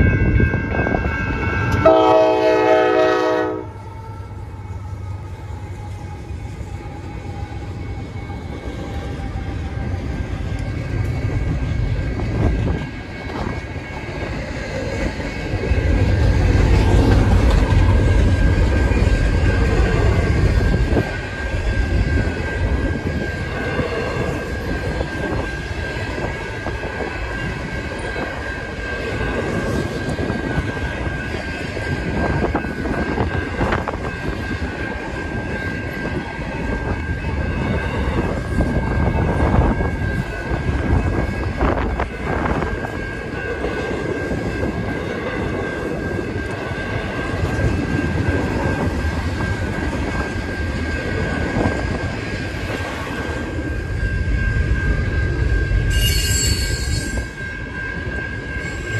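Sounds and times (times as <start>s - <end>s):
thin high tone: 50.1s - 58.9s.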